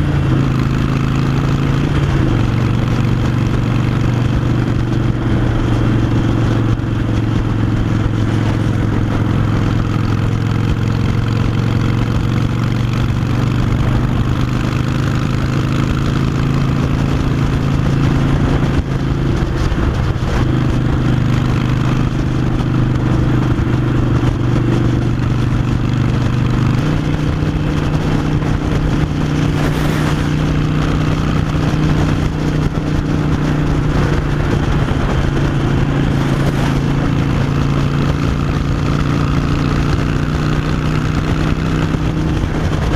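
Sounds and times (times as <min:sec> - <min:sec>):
motorcycle engine riding: 0:00.0 - 0:42.9.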